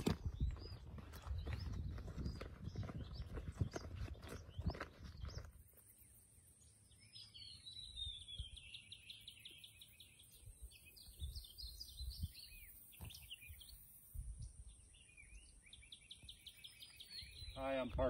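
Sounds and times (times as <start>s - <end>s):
bird chirps: 0.0s - 18.0s
songbird twittering song: 0.0s - 18.0s.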